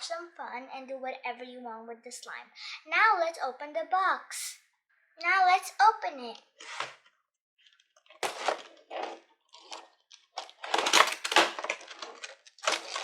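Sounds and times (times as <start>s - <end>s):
cardboard ripping and scraping: 6.6s - 7.0s, 8.1s - 13.0s.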